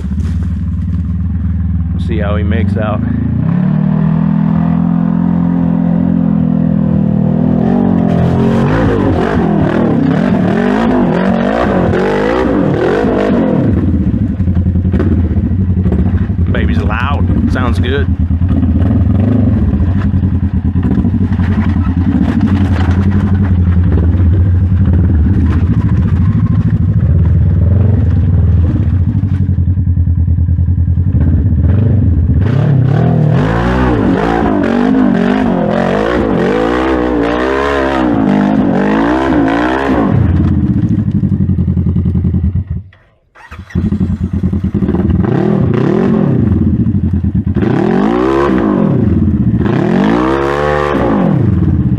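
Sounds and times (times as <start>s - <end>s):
engine revving hard: 7.4s - 14.1s, 16.6s - 19.8s, 31.2s - 40.6s, 43.4s - 46.8s, 47.5s - 51.9s.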